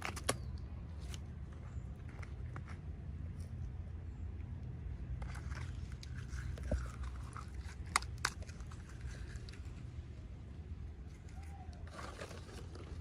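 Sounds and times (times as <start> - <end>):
packaging crinkling and rustling: 11.2 - 13.0.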